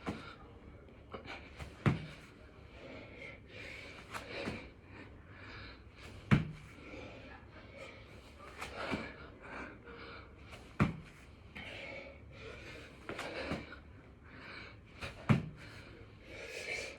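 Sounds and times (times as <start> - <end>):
body thudding on floor: 1.6 - 2.2, 6.2 - 6.7, 10.8 - 11.2, 15.0 - 15.7.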